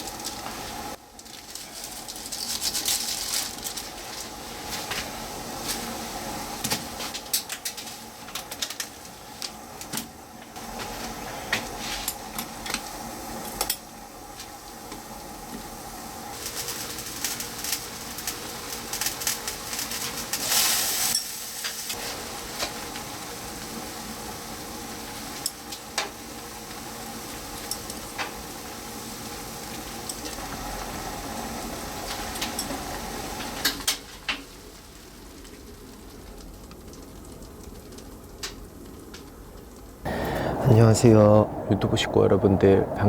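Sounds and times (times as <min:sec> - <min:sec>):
food sizzling in a pan: 0:00.0 - 0:39.7
utensils clinking on cookware: 0:32.3 - 0:32.8.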